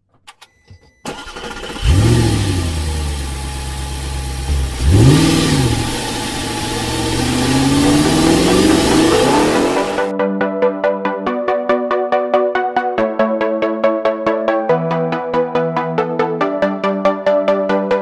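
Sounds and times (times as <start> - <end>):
vehicle engine starting and revving: 1.0 - 10.1.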